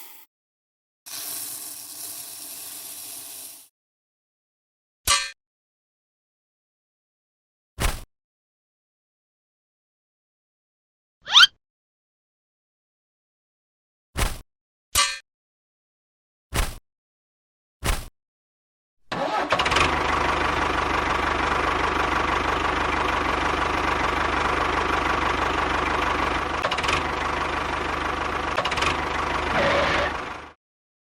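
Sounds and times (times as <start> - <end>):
engine running steadily: 19.2 - 30.6.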